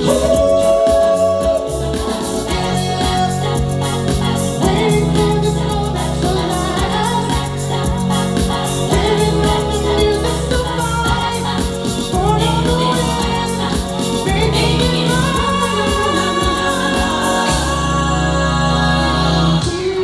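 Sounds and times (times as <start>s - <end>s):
backing track with pulsing bass: 0.0s - 20.0s
group of voices singing: 0.0s - 20.0s.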